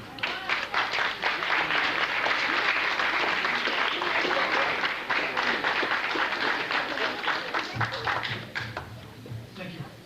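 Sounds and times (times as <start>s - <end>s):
congregation applauding: 0.2s - 8.8s.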